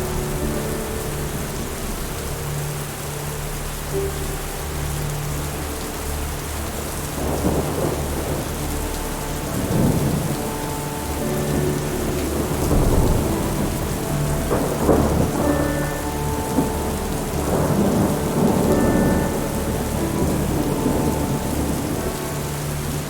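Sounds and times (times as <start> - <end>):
soft held musical notes: 0.0 - 23.0
steady rain: 0.0 - 23.0
thunder rolling: 7.0 - 23.0.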